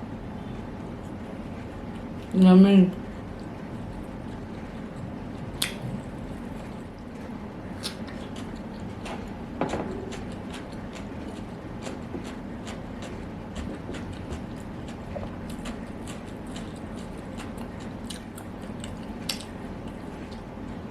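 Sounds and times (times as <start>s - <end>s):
wet chewing and mouth smacks: 3.3s - 7.1s, 7.8s - 20.5s.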